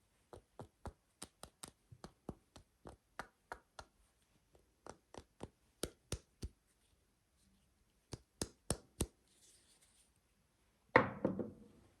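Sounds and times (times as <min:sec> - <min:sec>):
knock: 0:11.0 - 0:11.6.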